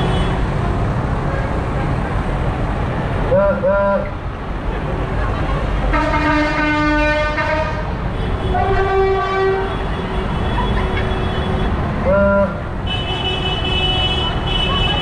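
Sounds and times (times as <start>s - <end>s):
horns sounding: 3.3s - 4.2s, 5.9s - 15.0s.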